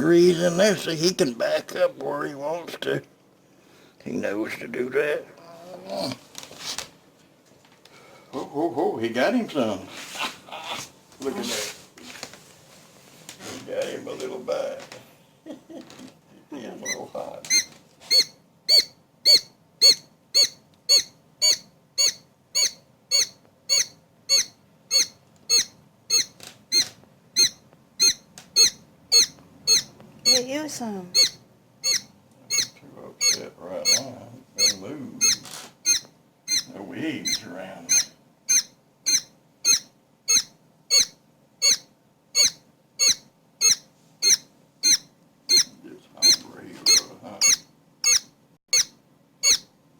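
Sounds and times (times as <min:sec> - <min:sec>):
quail chick peeping: 0:16.8 - 0:49.7.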